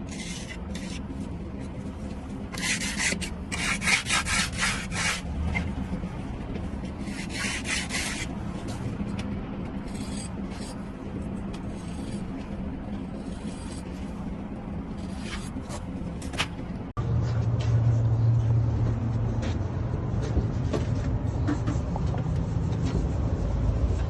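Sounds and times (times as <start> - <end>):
hand tool scraping mortar: 0.0 - 1.1, 2.6 - 5.2, 7.0 - 8.3, 9.8 - 10.8, 11.6 - 12.4, 13.0 - 14.1, 15.0 - 15.9
steady low hum: 0.0 - 24.0.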